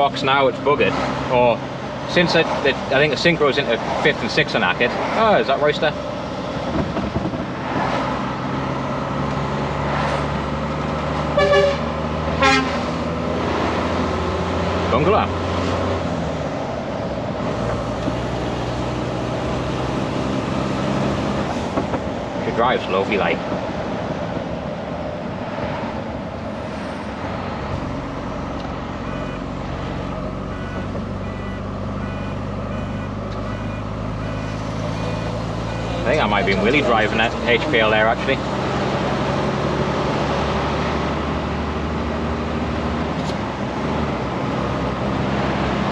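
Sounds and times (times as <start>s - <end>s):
lorry diesel engine running: 0.0s - 45.9s
air horn blast: 11.3s - 12.9s
short high beep: 29.0s - 29.4s, 30.5s - 36.1s.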